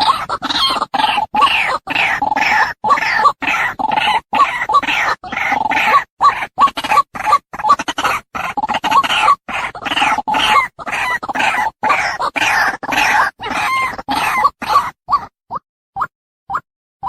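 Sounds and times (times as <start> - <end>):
waterhen calling: 0.0 - 15.3.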